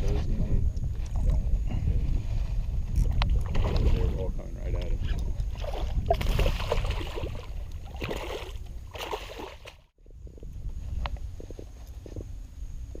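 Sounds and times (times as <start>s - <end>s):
wind rumbling on microphone: 0.0s - 13.0s
water sloshing around boat: 2.3s - 10.0s.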